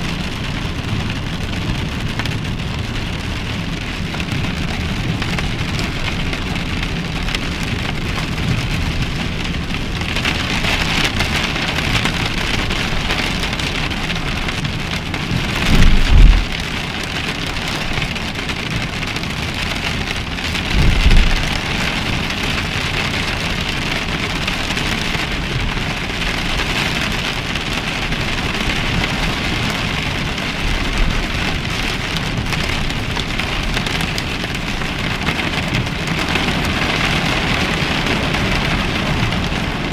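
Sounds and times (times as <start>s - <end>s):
heavy rain pouring: 0.0s - 39.9s
low booms: 15.6s - 16.6s, 20.6s - 21.7s.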